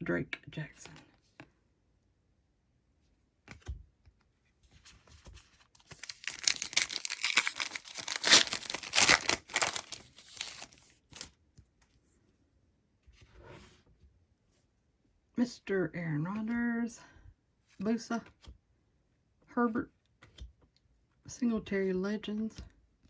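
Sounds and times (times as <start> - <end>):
wrapper tearing and crinkling: 5.8 - 11.3.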